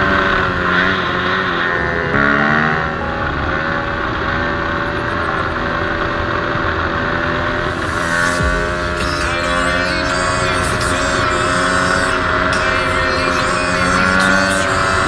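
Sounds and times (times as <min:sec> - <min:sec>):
motorcycle engine running: 0:00.0 - 0:15.0
music: 0:07.7 - 0:15.0.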